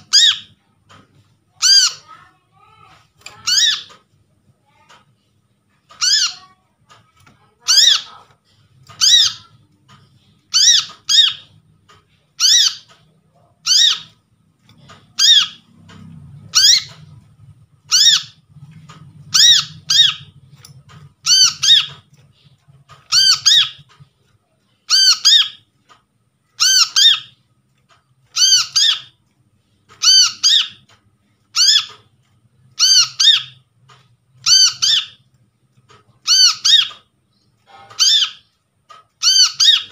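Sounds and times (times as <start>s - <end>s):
bird high chirping calls: 0.0s - 0.6s, 1.6s - 2.2s, 3.2s - 4.0s, 5.9s - 6.6s, 7.6s - 8.2s, 8.9s - 9.6s, 10.5s - 11.6s, 12.4s - 13.0s, 13.6s - 14.2s, 14.9s - 15.7s, 16.4s - 17.1s, 17.9s - 18.4s, 19.3s - 20.4s, 21.0s - 22.5s, 23.1s - 24.0s, 24.9s - 25.6s, 26.6s - 27.4s, 28.3s - 29.2s, 30.0s - 30.9s, 31.5s - 32.0s, 32.8s - 33.6s, 34.4s - 35.2s, 36.2s - 38.5s, 39.2s - 39.9s.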